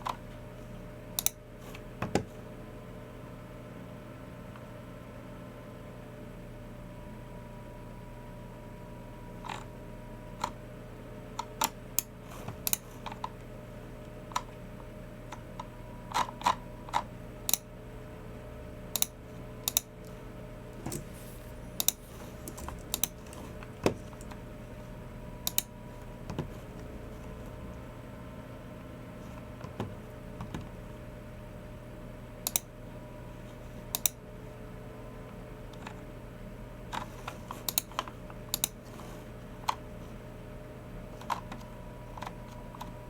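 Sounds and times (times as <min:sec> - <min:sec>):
keyboard keystrokes: 0:37.6 - 0:38.8.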